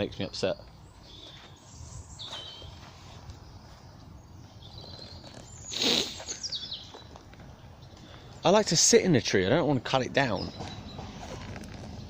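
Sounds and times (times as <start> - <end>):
small birds chirping: 0.0 - 12.0
rustle or crunch: 4.7 - 7.1.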